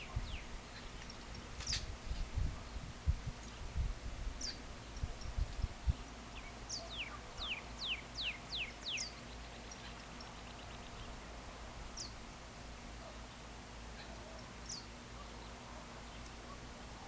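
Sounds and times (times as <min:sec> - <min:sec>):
wind on microphone: 0:00.0 - 0:06.1
bird whistling song: 0:06.4 - 0:11.1.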